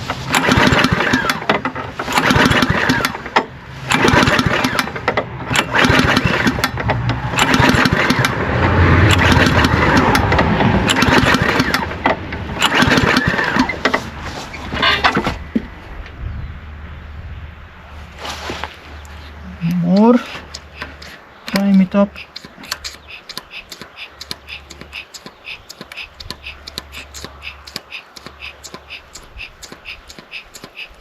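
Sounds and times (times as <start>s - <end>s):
engine cranking roughly: 0.0s - 15.7s, 19.9s - 31.0s
lawnmower engine pull-started: 0.0s - 16.0s, 18.0s - 31.0s.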